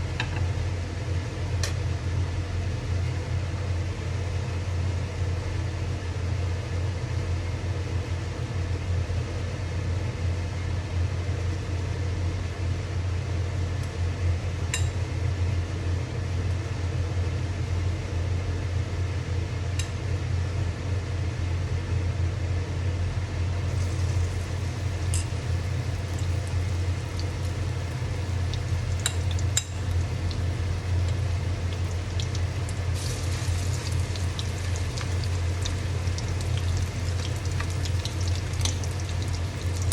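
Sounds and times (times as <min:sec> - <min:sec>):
steady low hum: 0:00.0 - 0:39.9
food frying in hot oil: 0:23.5 - 0:39.9.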